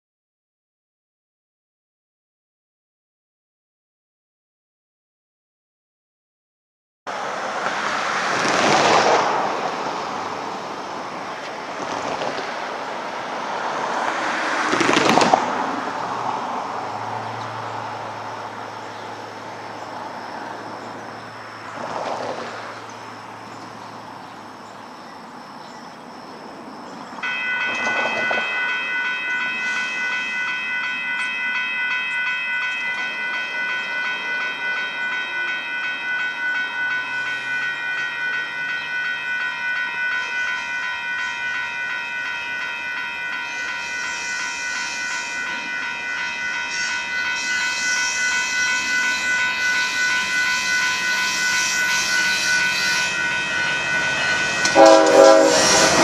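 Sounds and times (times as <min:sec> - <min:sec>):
freight train approaching: 0:07.1 - 0:56.0
train horn chord: 0:46.4 - 0:56.0.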